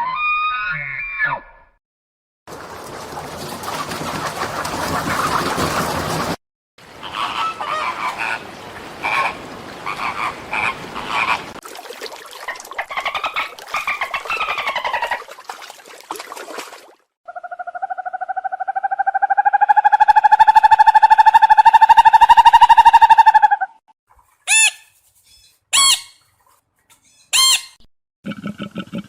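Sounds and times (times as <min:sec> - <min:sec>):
clicky pulsed animal calls: 0:17.3 - 0:23.8.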